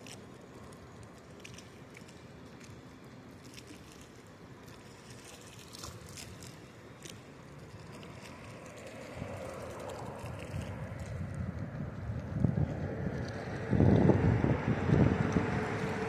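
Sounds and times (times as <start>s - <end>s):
wind buffeting microphone: 7.6s - 16.0s
wind rushing: 10.5s - 16.0s.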